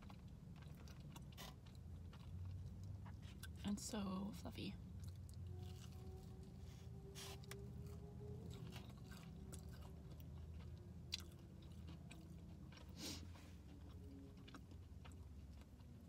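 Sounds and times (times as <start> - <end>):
chewing crunchy fried food: 0.0 - 16.0
low steady hum: 0.0 - 16.0.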